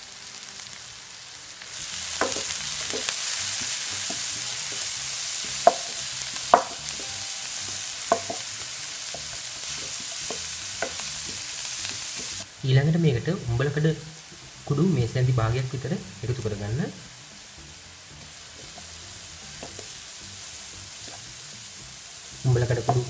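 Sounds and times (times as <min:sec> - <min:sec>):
vegetables sizzling in hot oil: 0:00.0 - 0:23.0
wooden spatula knocking against pan: 0:02.2 - 0:12.4, 0:18.6 - 0:20.0, 0:22.7 - 0:23.0.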